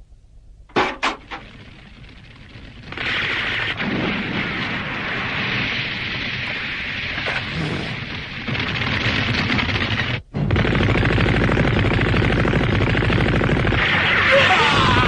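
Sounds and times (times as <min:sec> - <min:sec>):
rapid cartoon gunfire: 0:01.1 - 0:15.0.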